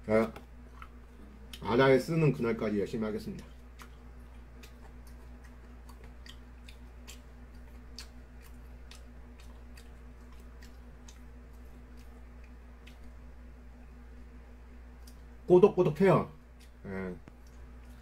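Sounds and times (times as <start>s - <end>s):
low electrical hum: 0.0s - 18.0s
chewing raw fish with bones: 3.4s - 13.3s.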